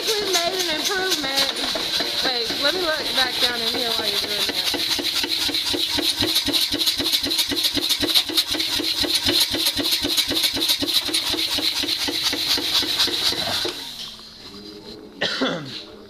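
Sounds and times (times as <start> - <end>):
power hammer running: 0.0 - 14.3.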